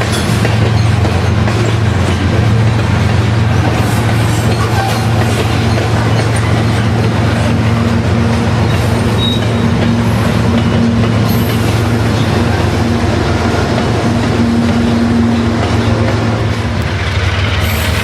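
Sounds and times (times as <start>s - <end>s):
diesel locomotive engine drone: 0.0s - 18.0s
rolling rail noise: 0.0s - 18.0s
high wheel squeal: 3.6s - 7.9s, 8.5s - 13.7s, 17.4s - 18.0s.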